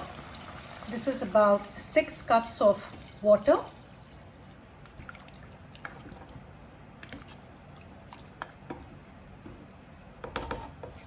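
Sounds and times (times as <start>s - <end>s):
water pouring into pot: 0.0s - 1.8s.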